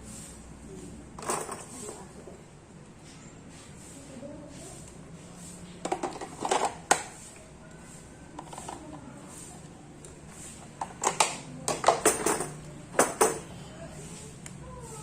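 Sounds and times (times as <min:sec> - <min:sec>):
hard objects clattering: 0:05.8 - 0:07.2, 0:10.7 - 0:13.5.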